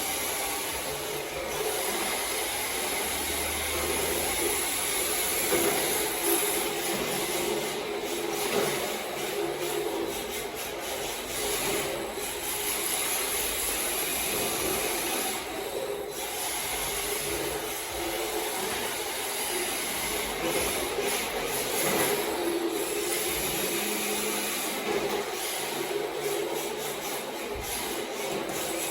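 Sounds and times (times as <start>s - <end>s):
electric motor whine: 11.2s - 28.9s.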